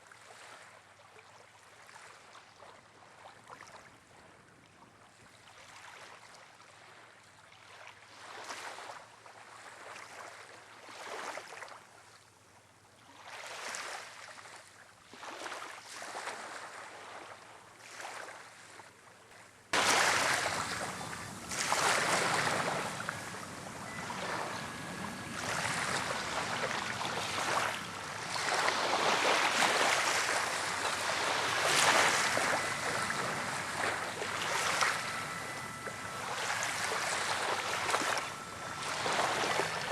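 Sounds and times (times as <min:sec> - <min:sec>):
waves washing ashore: 0:19.8 - 0:39.9.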